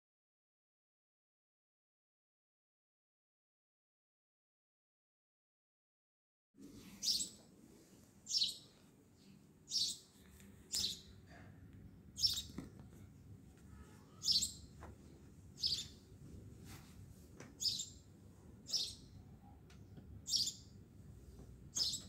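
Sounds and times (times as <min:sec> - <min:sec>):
faint low hum: 0:06.6 - 0:22.0
bird chirping: 0:07.0 - 0:07.4, 0:08.3 - 0:11.2, 0:12.2 - 0:12.7, 0:13.7 - 0:14.7, 0:15.5 - 0:16.1, 0:17.6 - 0:18.1, 0:18.7 - 0:19.6, 0:20.2 - 0:20.8, 0:21.7 - 0:22.0.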